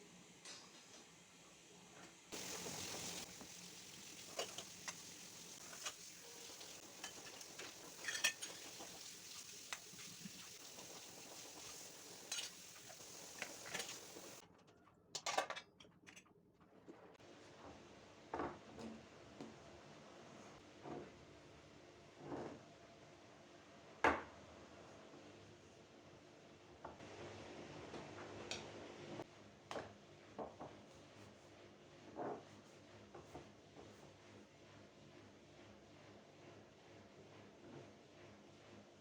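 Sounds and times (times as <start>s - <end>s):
steady hiss: 0.0s - 14.4s
dishes and utensils clinking: 2.4s - 10.6s, 11.4s - 14.4s.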